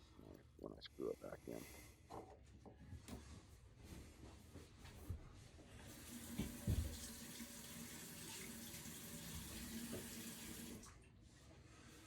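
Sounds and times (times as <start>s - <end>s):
water running from a tap: 5.9s - 10.9s.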